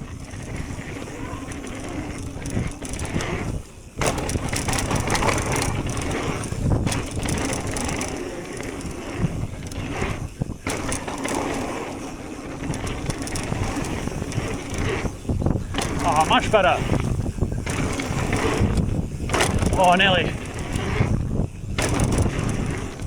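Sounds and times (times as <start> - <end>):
bike rattling: 0.0 - 23.0
tyres rolling over dirt: 0.0 - 23.0.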